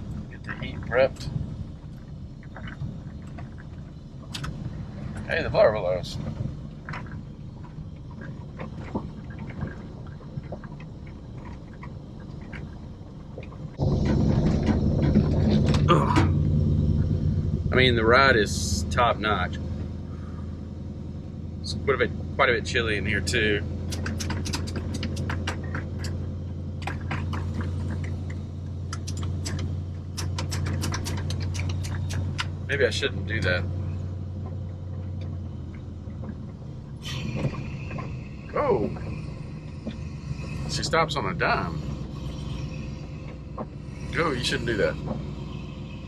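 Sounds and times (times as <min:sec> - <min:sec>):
clicks and rattles in cab: 0:00.0 - 0:17.2, 0:22.7 - 0:45.8
truck engine humming: 0:00.0 - 0:46.0
small clicks and rattles: 0:23.7 - 0:32.8.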